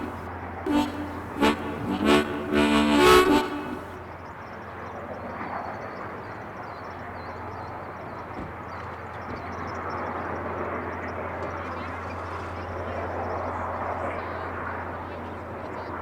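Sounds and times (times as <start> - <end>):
locomotive whistle blasts: 0.0 - 4.0.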